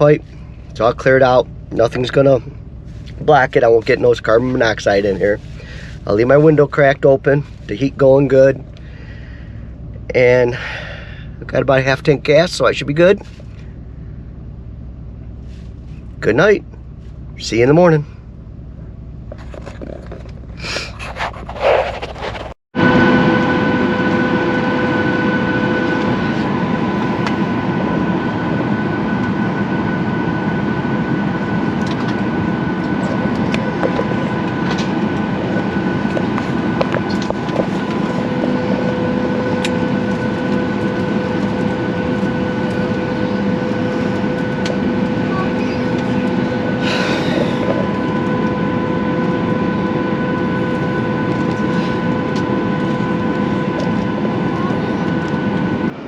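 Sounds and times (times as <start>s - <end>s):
vehicle interior rumble: 0.0s - 23.2s, 24.9s - 56.0s.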